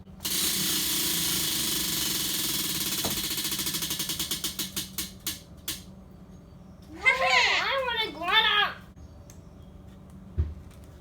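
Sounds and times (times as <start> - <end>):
spinning wheel ticking: 0.2 - 5.8.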